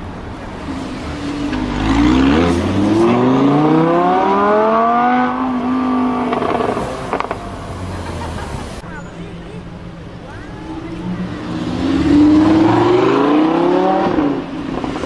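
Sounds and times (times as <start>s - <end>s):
sharp exhaust cracks: 0.0s - 8.8s
car engine accelerating hard: 0.0s - 8.9s, 10.1s - 15.0s.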